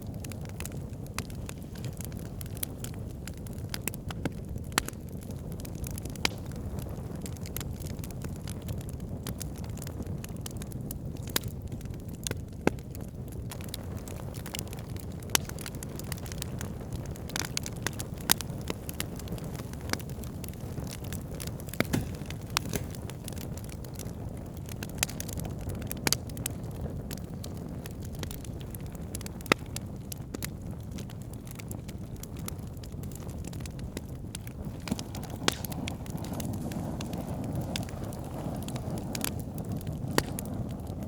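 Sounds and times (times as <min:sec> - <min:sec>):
campfire crackling and popping: 0:00.0 - 0:41.0
low rushing of fire: 0:00.0 - 0:41.0.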